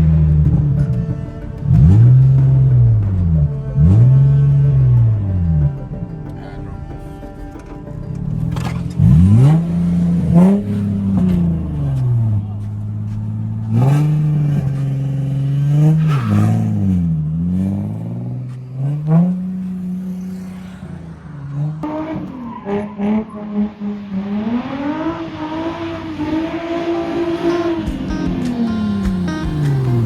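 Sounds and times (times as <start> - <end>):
car engine revving: 0.0 - 30.0
tyre squeal: 6.4 - 24.1.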